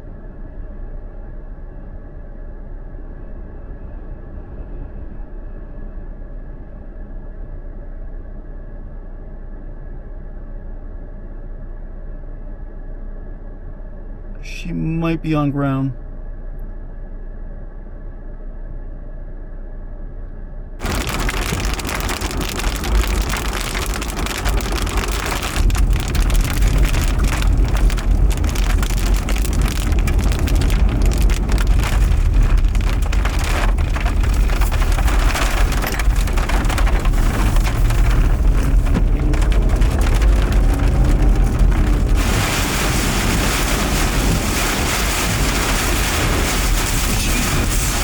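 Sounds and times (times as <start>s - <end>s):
wind buffeting microphone: 20.8s - 46.5s
gusting wind: 20.8s - 48.0s
heavy rain: 20.8s - 48.0s.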